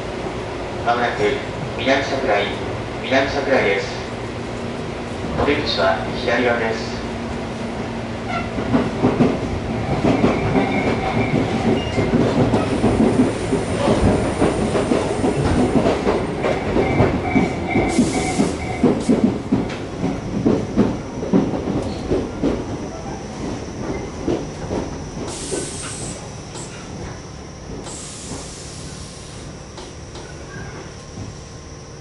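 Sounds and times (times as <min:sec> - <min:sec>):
train wheels clacking over rail joints: 0:08.3 - 0:28.5
air brake hiss: 0:25.3 - 0:26.8, 0:27.8 - 0:29.4.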